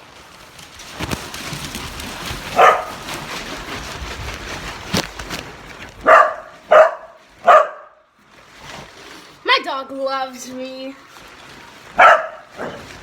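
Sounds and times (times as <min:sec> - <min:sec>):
dog barking: 0:02.6 - 0:03.0, 0:06.0 - 0:08.0, 0:12.0 - 0:12.9.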